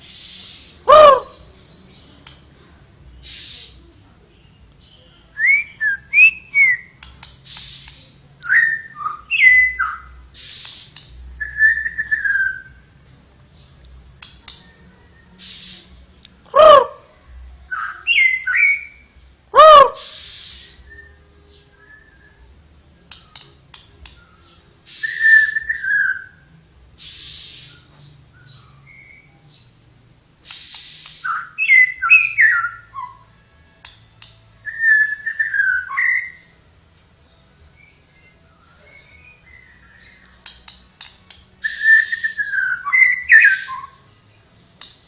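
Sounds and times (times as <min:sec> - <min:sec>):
songbird whistling: 0:00.0 - 0:01.9, 0:04.4 - 0:13.6, 0:14.2 - 0:45.0
loud lower bird call: 0:00.2 - 0:01.5, 0:16.5 - 0:17.2, 0:17.8 - 0:22.3
hissy bursts and clicks: 0:30.4 - 0:31.3.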